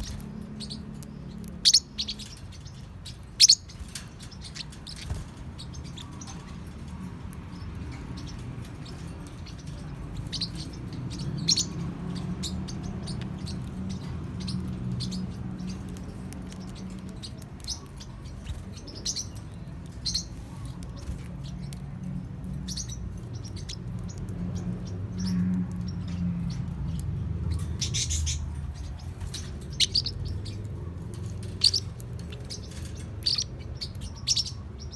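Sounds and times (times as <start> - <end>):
parrots chirping: 0.0 - 34.9.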